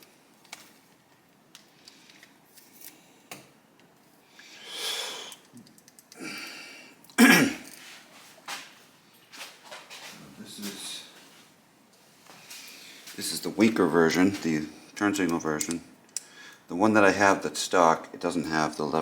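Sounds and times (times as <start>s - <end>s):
person breathing: 4.2s - 5.5s, 6.1s - 7.0s, 12.3s - 13.2s, 16.2s - 16.7s
person coughing: 7.2s - 7.7s.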